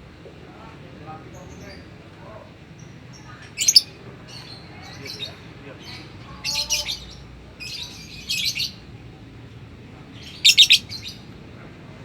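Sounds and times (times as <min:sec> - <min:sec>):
songbird chirping: 0:03.2 - 0:05.1, 0:10.2 - 0:11.2.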